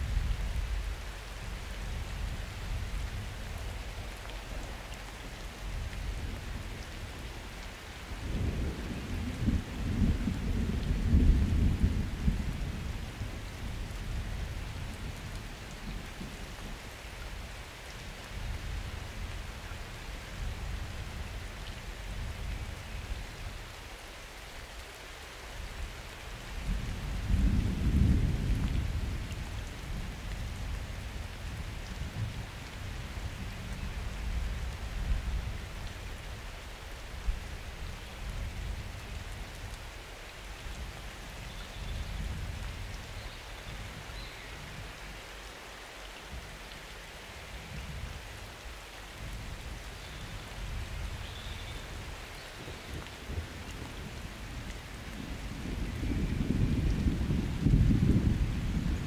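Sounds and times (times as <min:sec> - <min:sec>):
steady rain falling: 0:00.0 - 0:59.0
thunder rumbling: 0:51.8 - 0:59.0.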